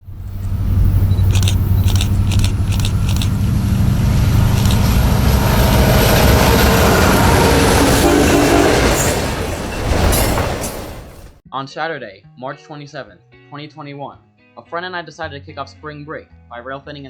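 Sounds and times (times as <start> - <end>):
diesel locomotive droning: 0.0 - 11.4
sharp clicks: 1.1 - 3.4, 4.4 - 4.9.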